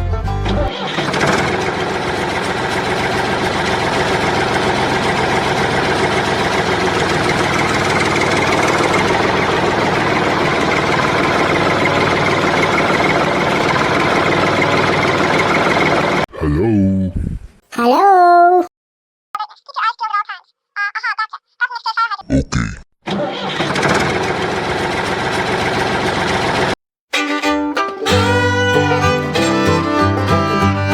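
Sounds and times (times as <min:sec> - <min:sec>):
music: 0:00.0 - 0:00.7, 0:27.1 - 0:30.9.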